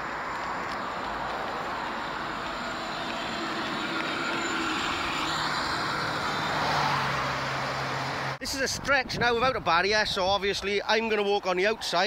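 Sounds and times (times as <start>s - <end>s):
road traffic passing: 0.0s - 8.8s.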